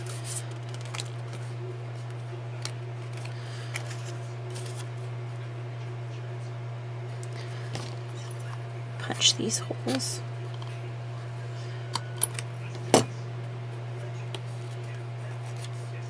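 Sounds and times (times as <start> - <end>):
paper rustling: 0.0 - 1.5, 2.6 - 5.0
steady low hum: 0.0 - 16.0.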